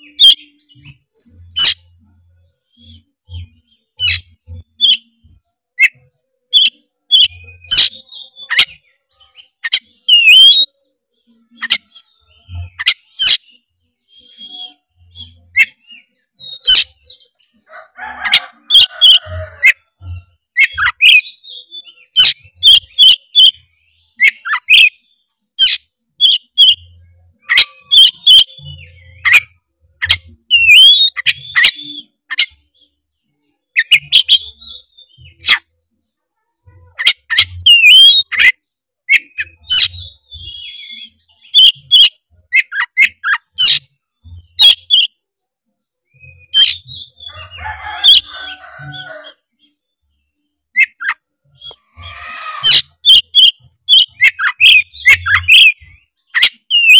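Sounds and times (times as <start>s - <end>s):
bird chattering: 0.0s - 2.0s, 2.7s - 5.2s, 25.6s - 32.6s, 36.8s - 45.1s, 50.8s - 56.9s
bird singing whistled notes: 6.6s - 10.8s, 11.6s - 17.4s, 20.2s - 32.9s, 37.0s - 38.5s, 39.1s - 43.8s, 50.8s - 56.9s.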